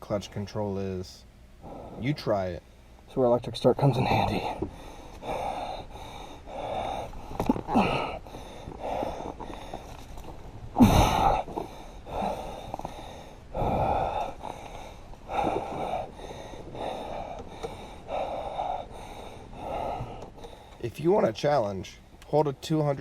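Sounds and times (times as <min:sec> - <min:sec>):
heavy rasping mouth breathing: 0:01.6 - 0:02.2, 0:04.1 - 0:20.8.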